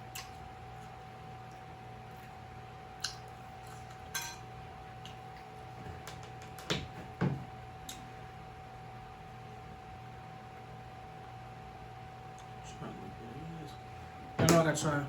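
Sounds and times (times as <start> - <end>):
faint hum: 0.0 - 15.0
utensil clinking against dish: 4.1 - 4.4.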